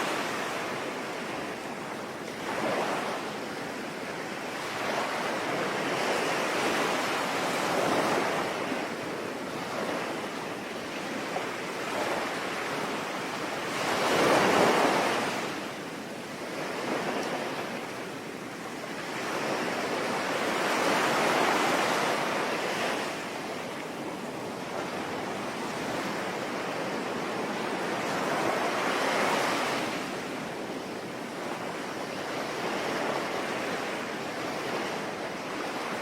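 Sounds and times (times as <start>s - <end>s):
sea waves breaking: 18.9s - 36.0s.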